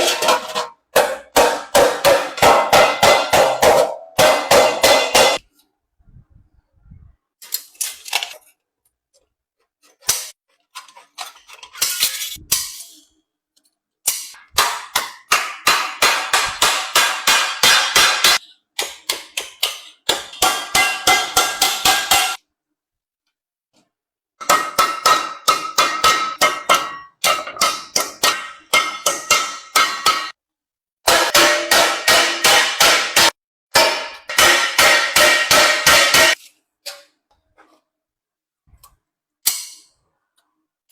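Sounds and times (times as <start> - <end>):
hammer striking sheet iron: 0.0 - 5.4, 14.1 - 22.4, 24.4 - 30.4, 31.1 - 37.0.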